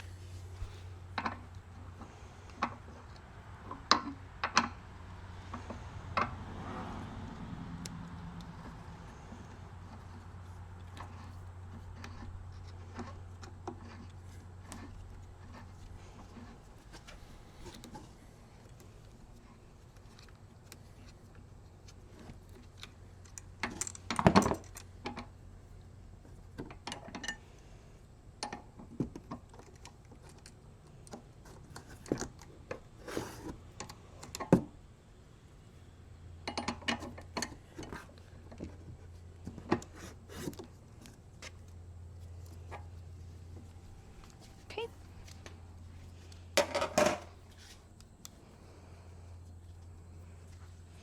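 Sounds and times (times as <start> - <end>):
low steady hum: 0.0 - 51.0
clicks and clinks of bike parts: 21.8 - 25.4, 26.5 - 27.4, 28.4 - 34.7, 36.4 - 38.8, 46.2 - 48.4.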